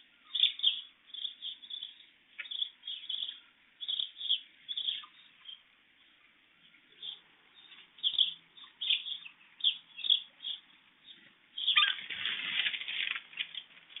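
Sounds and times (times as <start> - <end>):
small birds flapping wings: 11.8 - 14.0.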